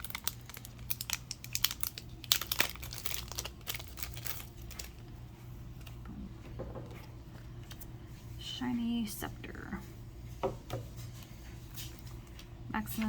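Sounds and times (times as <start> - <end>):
wrapper crinkling and tearing: 0.0 - 5.2.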